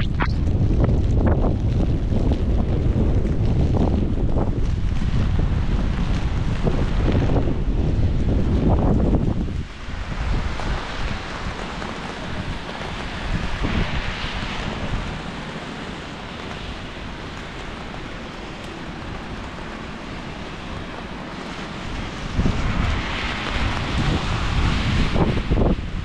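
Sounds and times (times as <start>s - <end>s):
wind buffeting microphone: 0.0s - 26.0s
rain on a wet street: 0.3s - 26.0s.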